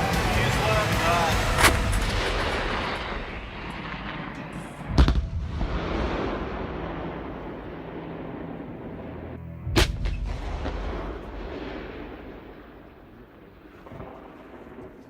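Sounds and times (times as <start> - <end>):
artillery guns firing: 0.0 - 9.2.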